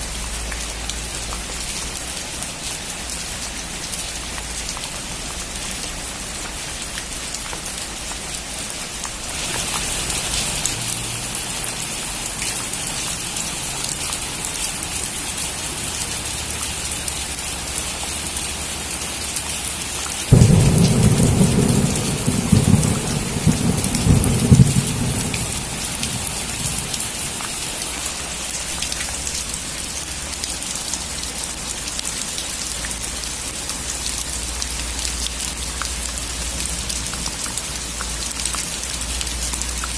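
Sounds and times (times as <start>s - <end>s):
heavy rain falling: 0.0s - 39.9s
thunder clap and rolling rumble: 20.3s - 27.5s.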